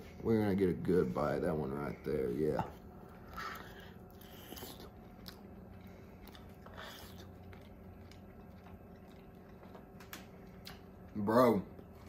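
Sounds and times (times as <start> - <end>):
person chewing: 2.7 - 11.0.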